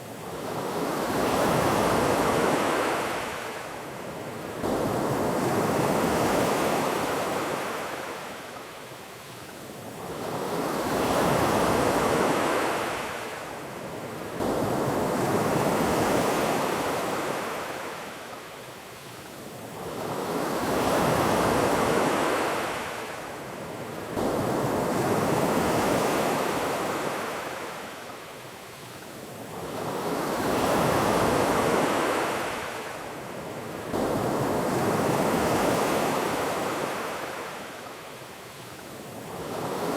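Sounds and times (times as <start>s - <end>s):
ocean surf washing ashore: 9.9s - 39.9s.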